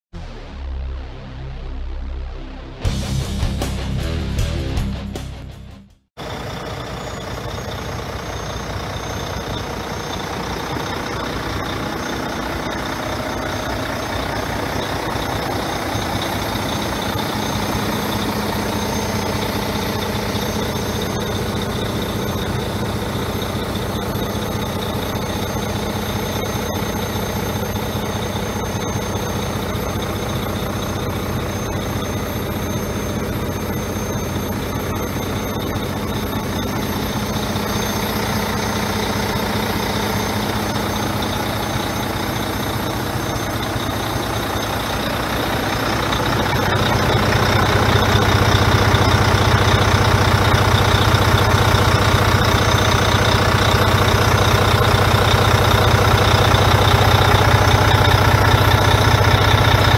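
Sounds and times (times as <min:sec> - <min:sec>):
truck diesel engine running: 0:00.2 - 0:59.9.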